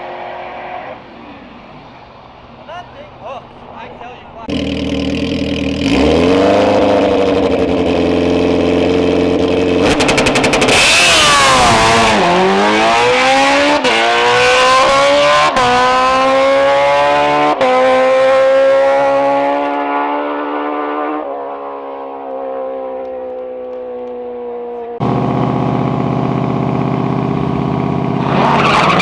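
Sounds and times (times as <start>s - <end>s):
engine upshifts: 0.0s - 29.0s
engine crackle: 4.3s - 13.0s, 25.0s - 29.0s
drag car engine revving: 4.4s - 24.1s, 25.0s - 29.0s.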